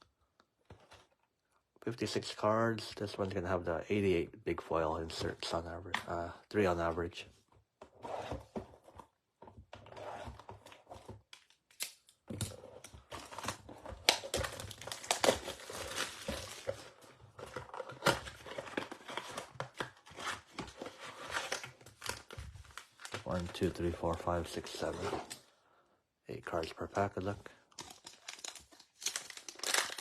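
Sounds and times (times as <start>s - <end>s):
cardboard rustling: 12.4s - 25.4s
plastic wrapping crinkling: 13.8s - 17.0s, 27.7s - 30.0s.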